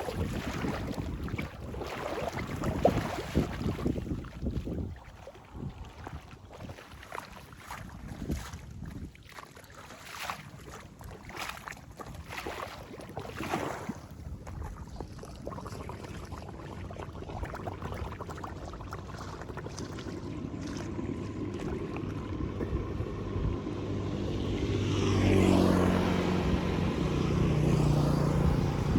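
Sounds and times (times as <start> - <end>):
wind buffeting microphone: 0.0 - 9.2, 19.0 - 28.9
rushing water: 0.0 - 28.9
vehicle engine approaching: 18.8 - 28.9.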